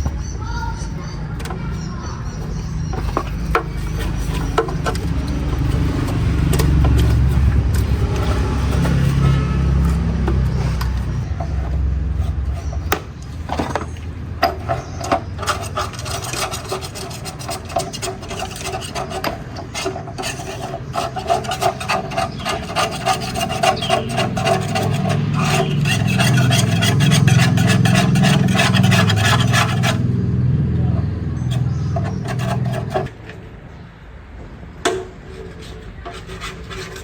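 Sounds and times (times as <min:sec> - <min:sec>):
rasping filing strokes: 0:00.0 - 0:13.1, 0:14.5 - 0:30.1, 0:31.3 - 0:33.2, 0:35.4 - 0:37.0.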